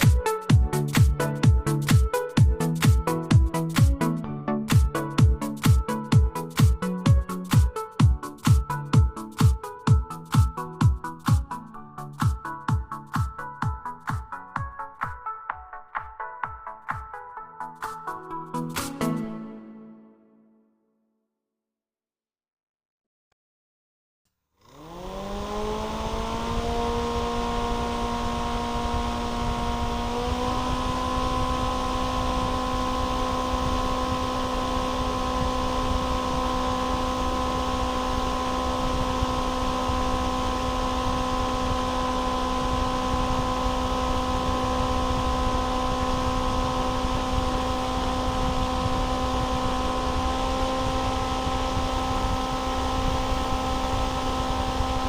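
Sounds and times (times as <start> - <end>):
small motor whining: 24.6 - 55.0.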